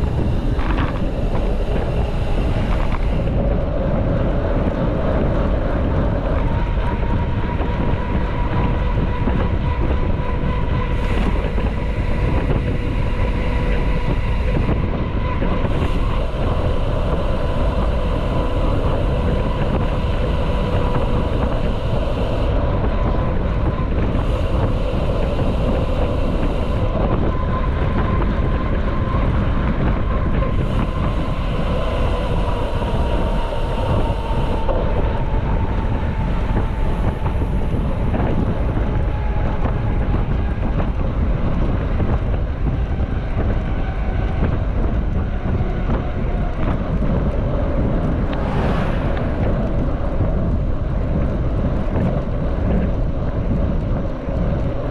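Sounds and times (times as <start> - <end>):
wind rumbling on microphone: 0.0 - 54.9
steady hum dropping in pitch: 10.8 - 38.8, 47.5 - 51.6.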